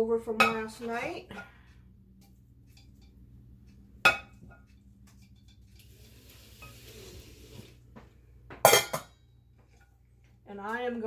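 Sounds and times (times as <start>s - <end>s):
utensil scraping and stirring food: 0.5s - 7.8s, 9.6s - 10.3s.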